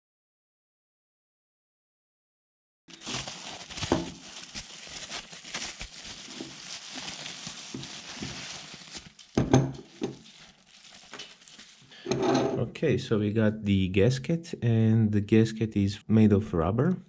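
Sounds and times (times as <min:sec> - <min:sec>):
plastic packaging crinkling: 0:02.9 - 0:12.0.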